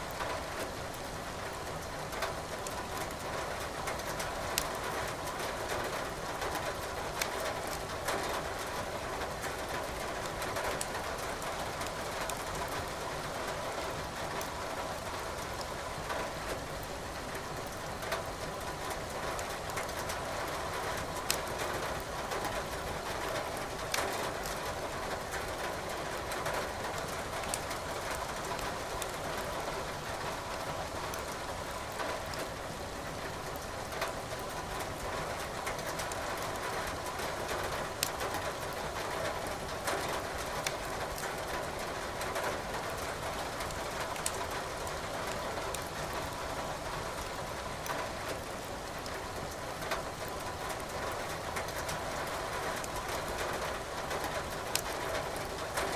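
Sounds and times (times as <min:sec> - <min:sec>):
wood fire crackling and popping: 0:07.2 - 0:07.8, 0:43.6 - 0:44.5, 0:54.7 - 0:54.9.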